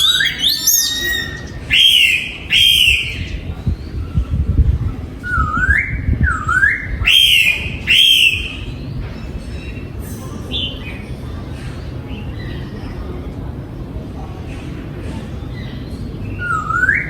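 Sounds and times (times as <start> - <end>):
bird singing whistled notes: 0.0 - 3.9.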